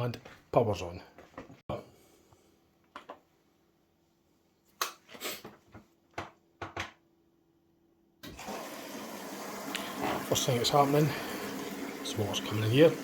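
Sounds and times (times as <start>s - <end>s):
water rushing into washing machine: 8.2s - 13.0s.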